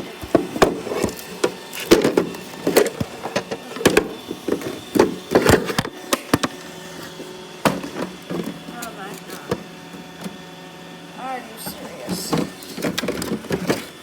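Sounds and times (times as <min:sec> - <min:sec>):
robot vacuum hum: 0:00.0 - 0:14.0
robot vacuum clacking: 0:11.6 - 0:14.0.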